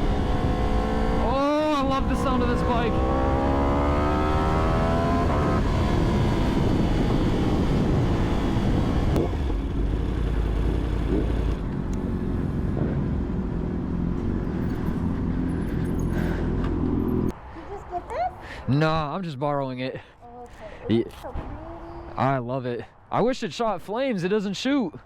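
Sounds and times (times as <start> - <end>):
motorcycle engine accelerating: 0.0 - 17.3
wind buffeting microphone: 2.8 - 17.3.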